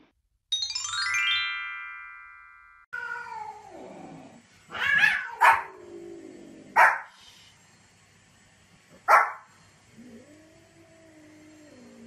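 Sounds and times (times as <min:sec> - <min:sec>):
small dog barking: 0:04.8 - 0:05.8, 0:06.7 - 0:07.1, 0:09.0 - 0:09.5.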